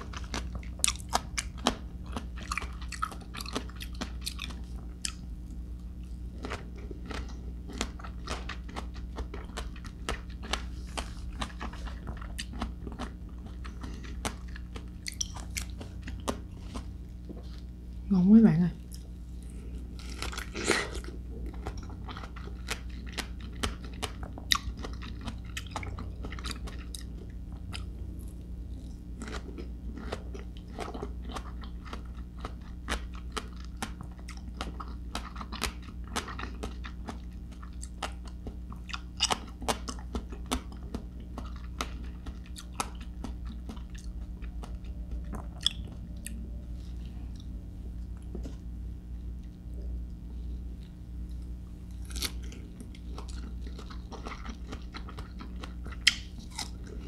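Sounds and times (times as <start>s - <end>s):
crunchy chewing of fruit: 0.0s - 18.0s, 18.8s - 57.0s.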